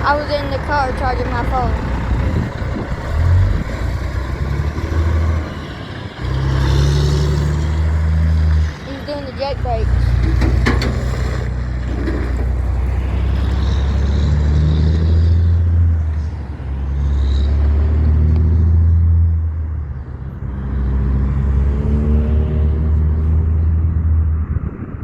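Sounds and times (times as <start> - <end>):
truck engine brake rumbling: 9.8 - 13.7.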